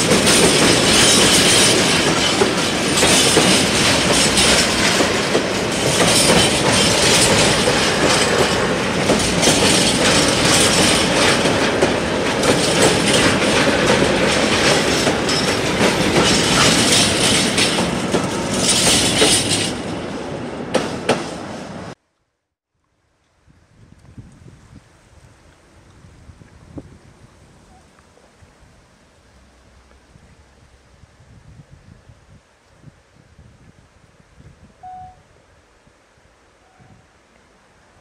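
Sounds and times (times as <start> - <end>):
train wheels clattering on rails: 0.0 - 22.0.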